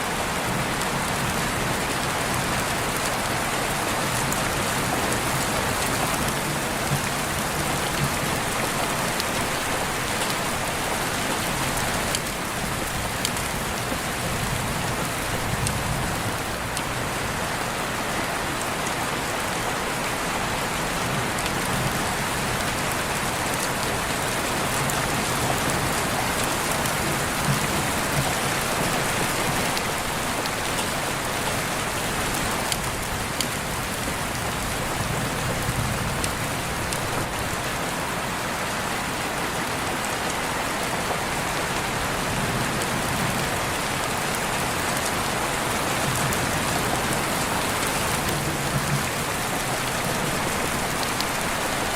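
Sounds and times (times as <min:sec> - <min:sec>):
steady rain hissing: 0:00.0 - 0:51.9.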